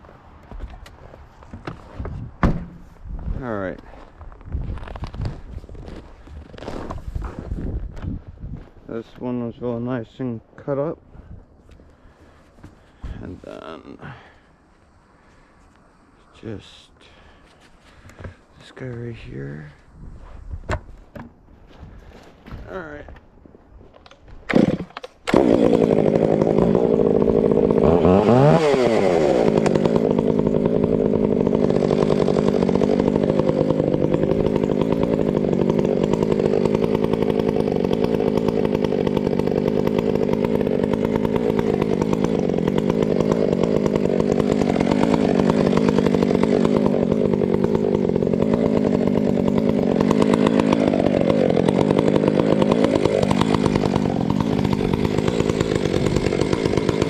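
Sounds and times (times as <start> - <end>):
chainsaw running: 4.8 - 7.6, 24.0 - 57.0.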